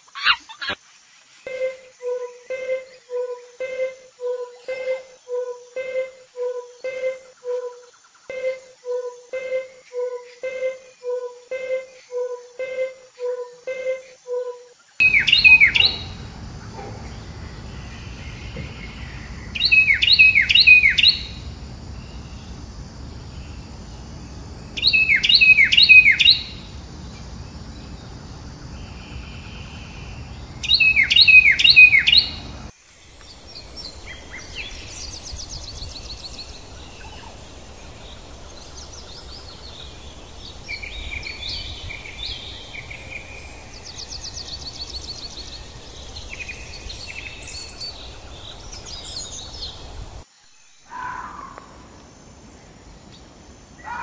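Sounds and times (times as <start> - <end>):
bird calling in falling notes: 8.3 - 32.7
birds chirping and singing: 15.0 - 50.2
low background hum: 15.0 - 50.2.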